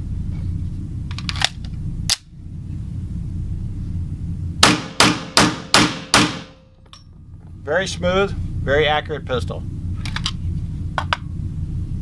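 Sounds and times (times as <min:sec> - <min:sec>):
steady low rumble: 0:00.0 - 0:12.0
pistol shots: 0:04.6 - 0:06.6.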